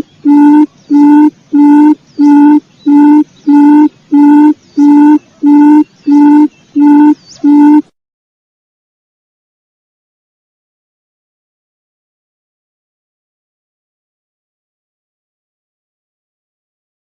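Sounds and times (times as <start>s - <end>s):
faint high bird chirps: 0.0s - 7.9s
quail call low hooting: 0.0s - 7.9s.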